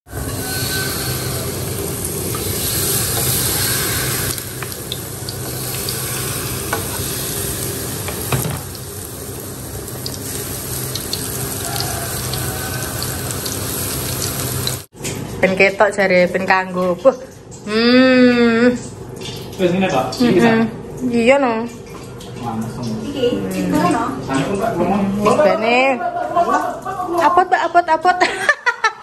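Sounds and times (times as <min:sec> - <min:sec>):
batter sizzling in hot oil: 0:00.1 - 0:14.9.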